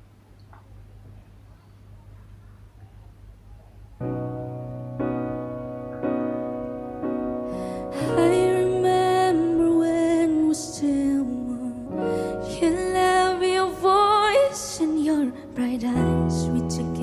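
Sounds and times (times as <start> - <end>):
piano accompaniment: 4.0 - 17.0
woman singing a ballad: 7.6 - 17.0.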